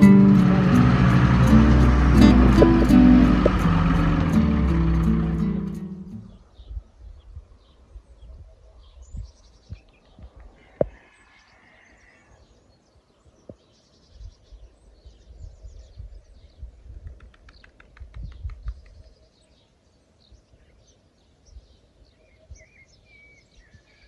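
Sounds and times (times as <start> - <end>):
intro music: 0.0 - 6.4
low uneven rumbles: 0.0 - 6.4
small birds chirping: 5.0 - 24.0.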